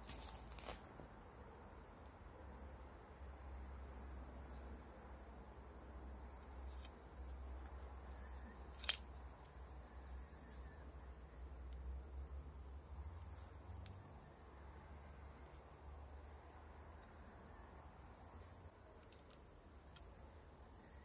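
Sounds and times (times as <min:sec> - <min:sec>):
small bird chirping: 0:04.1 - 0:04.8, 0:06.3 - 0:07.1, 0:09.9 - 0:10.9, 0:12.9 - 0:14.3, 0:18.0 - 0:18.8
sharp metallic click: 0:08.8 - 0:09.2.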